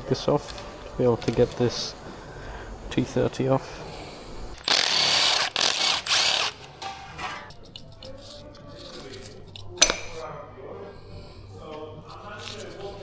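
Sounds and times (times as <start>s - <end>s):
power tool spinning: 4.5s - 6.7s.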